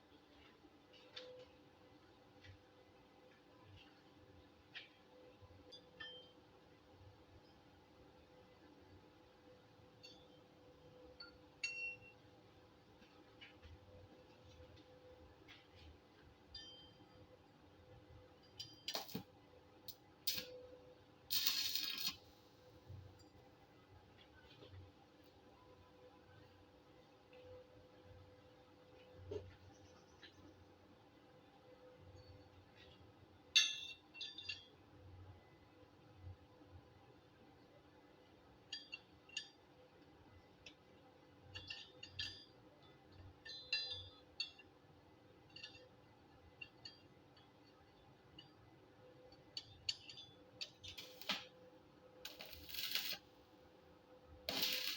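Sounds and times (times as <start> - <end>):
metallic clinks of steel parts: 18.4 - 19.3, 21.3 - 22.3, 33.6 - 34.8, 41.4 - 44.8, 45.4 - 48.6, 49.3 - 51.5, 52.3 - 53.2, 54.5 - 54.9
small steel pieces clinking: 21.3 - 22.2, 52.3 - 53.2, 54.5 - 54.9
arc welding crackling hiss: 21.3 - 22.4, 50.9 - 51.5, 52.3 - 53.3, 54.5 - 54.9.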